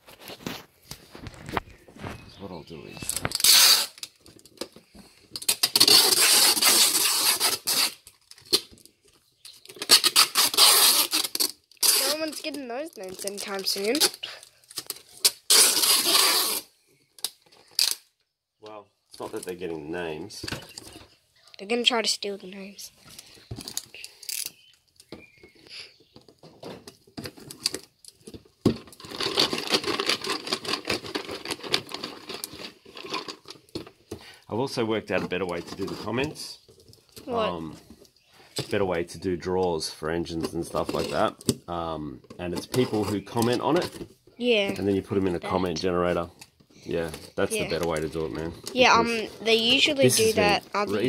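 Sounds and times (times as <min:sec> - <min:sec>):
paper slips rattling in cardboard box: 0:09.7 - 0:14.4, 0:28.7 - 0:33.6
paper rustling in cardboard box: 0:09.8 - 0:16.6.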